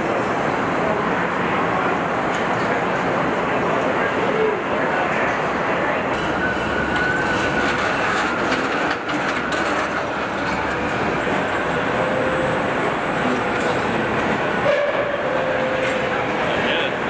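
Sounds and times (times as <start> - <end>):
factory machinery noise: 0.0 - 17.0
faint machine whines: 6.1 - 16.9
clicks and clanks: 6.9 - 11.0.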